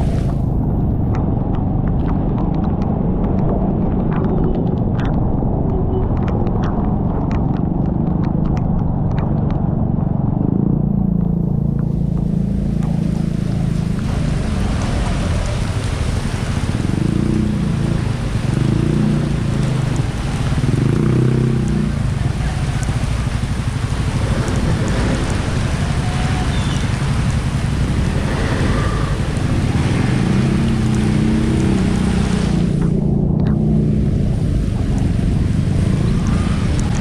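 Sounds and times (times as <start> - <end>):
rain hiss: 0.0 - 0.4, 12.3 - 37.0
motorcycle engine and road rumble: 0.0 - 37.0.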